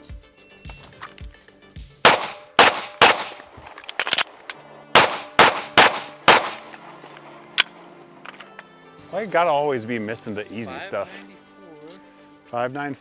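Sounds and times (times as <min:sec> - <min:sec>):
handgun shots: 0:02.1 - 0:08.4.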